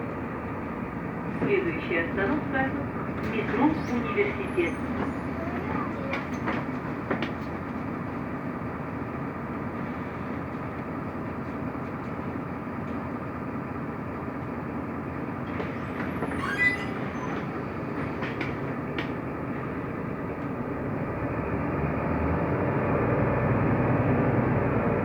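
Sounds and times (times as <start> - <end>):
bus engine and road rumble: 0.0 - 25.0
high-pitched squeak: 15.6 - 17.8.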